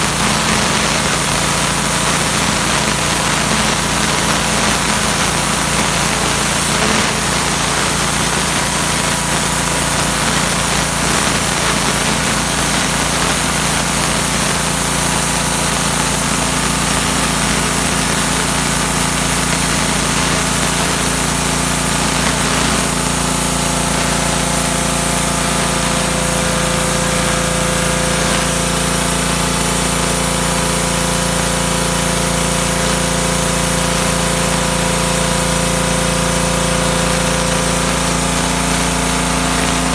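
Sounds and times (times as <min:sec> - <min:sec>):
pressure washer motor drone: 0:00.0 - 0:39.9
water jet hissing: 0:00.0 - 0:39.9.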